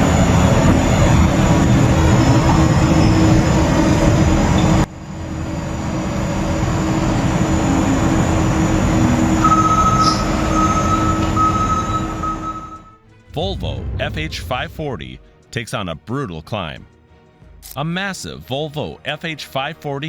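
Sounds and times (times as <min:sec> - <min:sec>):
high-pitched whine: 0:00.0 - 0:15.3
heavy truck engines: 0:00.0 - 0:15.4.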